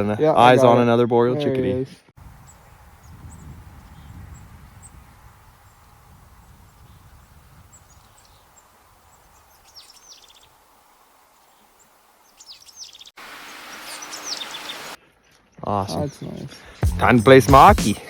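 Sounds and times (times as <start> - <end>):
chickadee calling: 7.7 - 10.6, 11.5 - 15.0.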